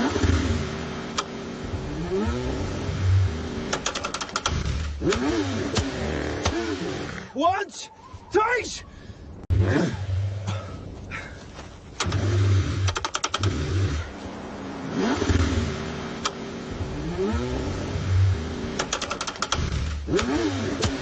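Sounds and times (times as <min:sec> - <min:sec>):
car engine cranking and revving: 0:00.0 - 0:07.3, 0:11.9 - 0:21.0
quick sharp clicks: 0:03.7 - 0:06.6, 0:18.8 - 0:21.0.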